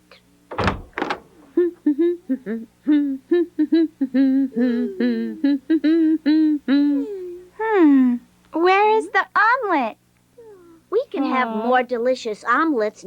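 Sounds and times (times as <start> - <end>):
cartoon voice humming a tune: 1.5 - 8.3.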